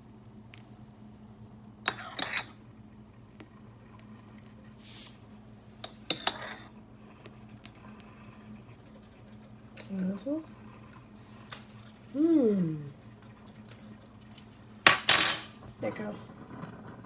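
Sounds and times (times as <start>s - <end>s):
crockery and utensils clinking: 14.9s - 15.6s.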